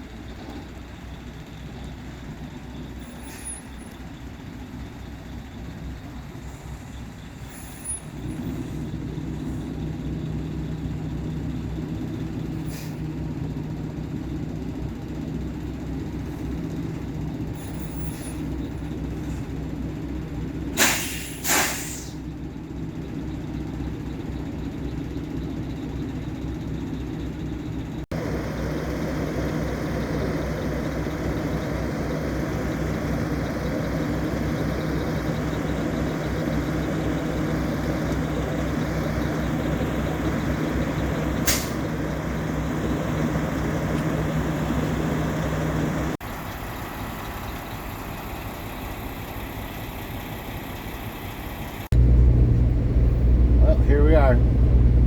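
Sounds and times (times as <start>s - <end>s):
truck engine running: 0.0s - 55.0s
loud air hisses: 20.8s - 22.2s.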